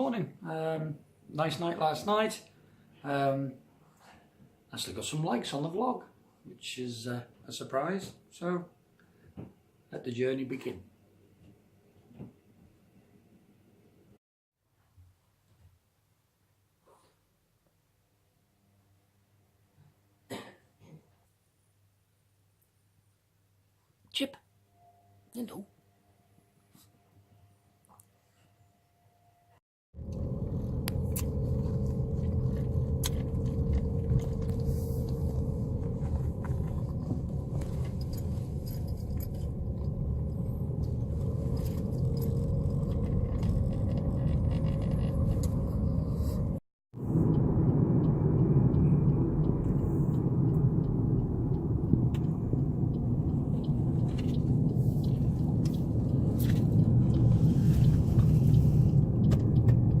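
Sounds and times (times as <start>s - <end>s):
car engine and tyre rumble: 30.0s - 60.0s.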